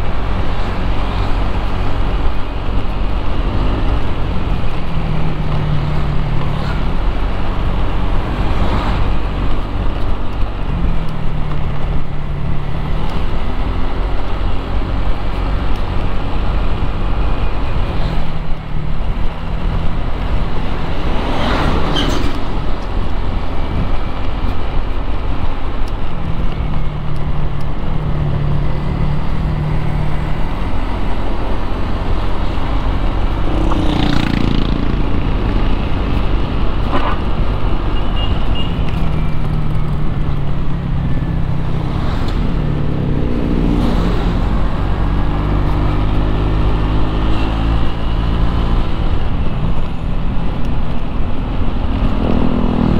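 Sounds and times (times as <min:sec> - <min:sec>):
vehicles passing: 0:00.0 - 0:52.9
engine hum rising and falling: 0:38.9 - 0:52.9.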